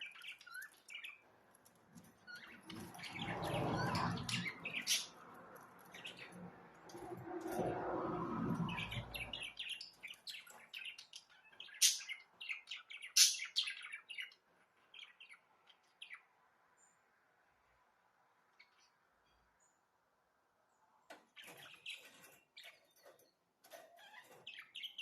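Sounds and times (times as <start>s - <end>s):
budgerigars chirping: 2.3s - 5.2s, 8.8s - 14.4s.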